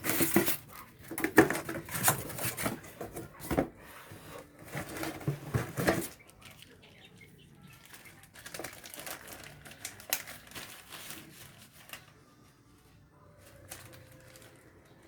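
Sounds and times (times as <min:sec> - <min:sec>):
plastic packaging crinkling: 0:07.6 - 0:12.2, 0:12.8 - 0:15.0.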